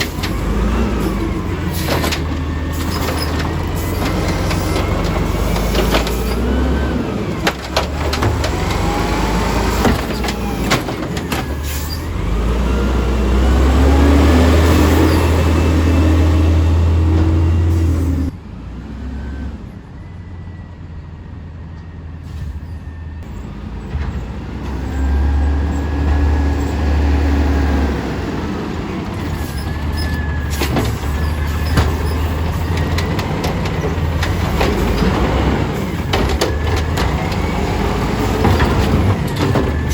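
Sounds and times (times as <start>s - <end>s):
garbage truck engine revving: 0.0s - 19.9s, 23.2s - 39.9s.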